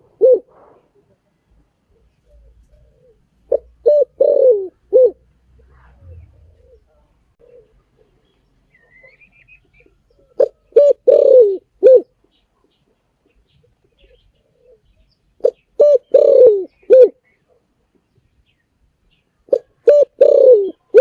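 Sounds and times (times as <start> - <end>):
dove cooing: 0.0 - 1.1, 1.9 - 8.2, 8.8 - 12.2, 13.9 - 17.6, 19.5 - 21.0
faint bird chirp: 0.5 - 4.0, 5.5 - 10.8, 11.9 - 21.0.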